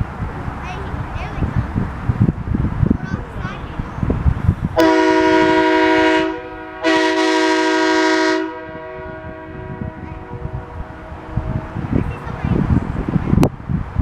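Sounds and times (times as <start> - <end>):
multi-note air horn blasts: 4.8 - 12.0.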